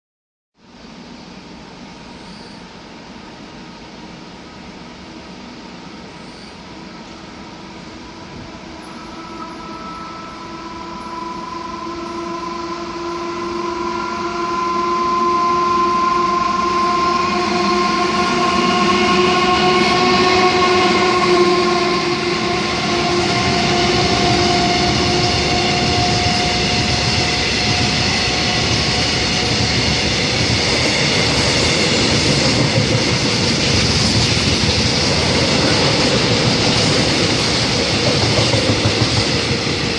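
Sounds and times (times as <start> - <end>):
locomotive whine: 0.7 - 39.9
train wagons rumbling on rails: 16.2 - 39.9.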